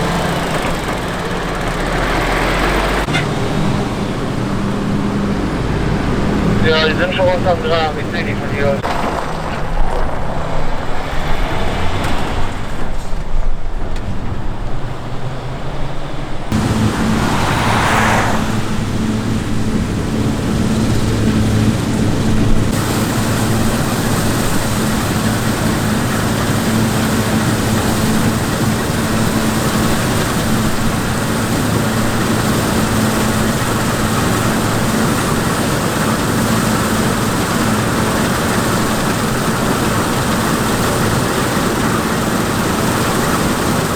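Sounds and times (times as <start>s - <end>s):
diesel machinery engine running: 0.0s - 43.9s.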